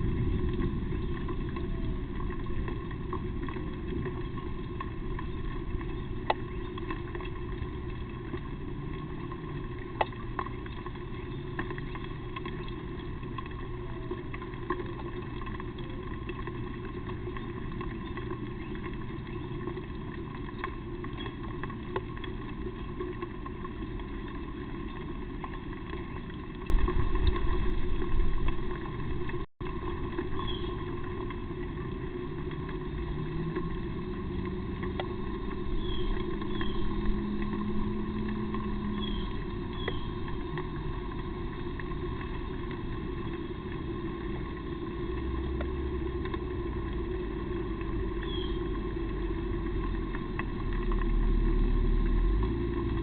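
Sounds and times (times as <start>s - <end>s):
loud low rumble: 0.0s - 4.2s, 26.7s - 42.2s
faint engine hum: 0.0s - 53.0s
low background drone: 0.0s - 53.0s.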